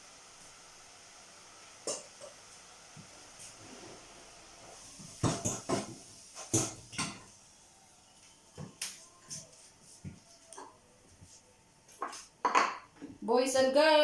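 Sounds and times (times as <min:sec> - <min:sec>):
plates and cutlery clinking: 0:12.0 - 0:12.9.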